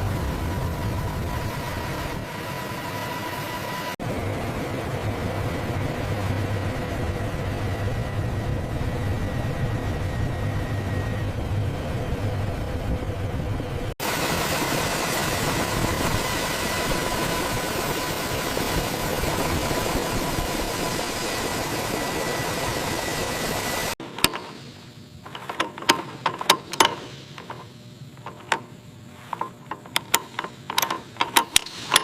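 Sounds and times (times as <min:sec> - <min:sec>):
mechanical drone with faint whine: 0:00.0 - 0:32.0
clicks and taps on metal: 0:24.1 - 0:24.6, 0:25.3 - 0:28.7, 0:29.3 - 0:32.0.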